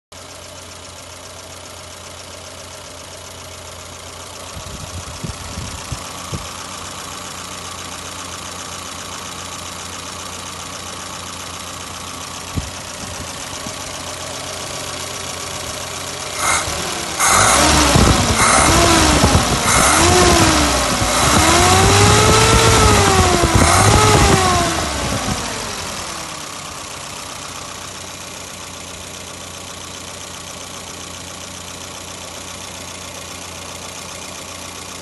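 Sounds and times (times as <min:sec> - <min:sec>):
car engine idling: 0:00.1 - 0:35.0
engine revving up sharply: 0:16.3 - 0:26.6.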